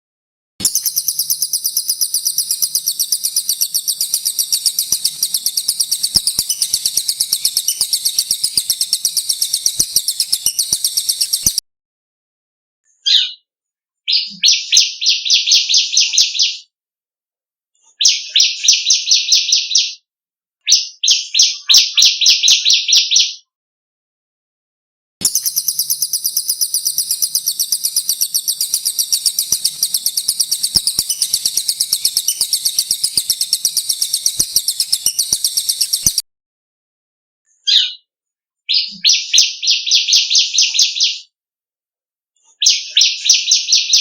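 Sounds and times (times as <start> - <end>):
bird rapid repeated notes: 0.6 - 11.6, 25.2 - 36.2
songbird rolling trill: 0.6 - 11.6, 25.2 - 36.2.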